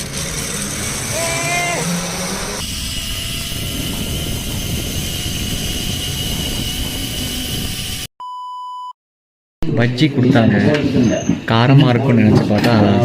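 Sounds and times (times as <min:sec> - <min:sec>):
loud rushing noise with high whine: 0:00.0 - 0:08.1
short electronic beep: 0:08.2 - 0:09.0.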